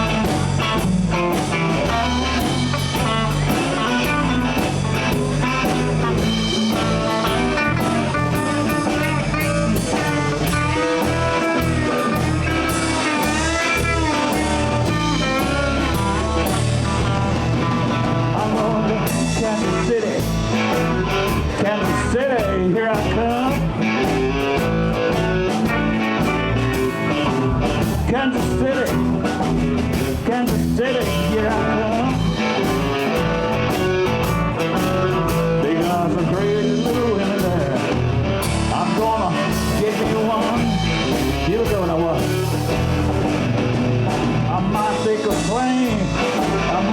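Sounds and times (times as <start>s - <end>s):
blues band playing: 0.0s - 46.9s
electric guitar lead with bent notes: 0.0s - 46.9s.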